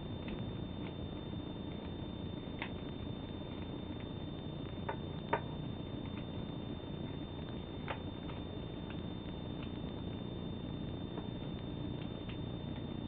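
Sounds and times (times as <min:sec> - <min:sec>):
paper crackling and tapping: 0:00.2 - 0:10.0.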